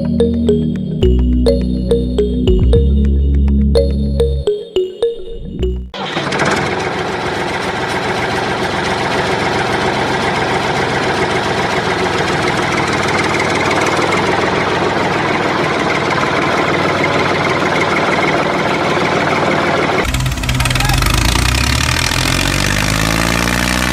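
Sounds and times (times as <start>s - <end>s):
tractor engine idling: 6.0s - 22.2s.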